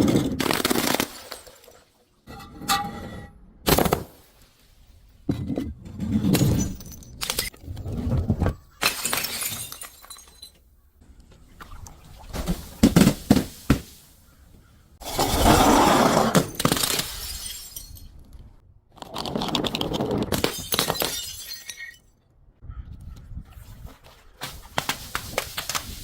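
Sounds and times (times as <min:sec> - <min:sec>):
glass bottles crushed and breaking: 0:00.0 - 0:01.9, 0:06.2 - 0:07.6, 0:08.7 - 0:10.6, 0:15.0 - 0:18.3, 0:19.6 - 0:22.1.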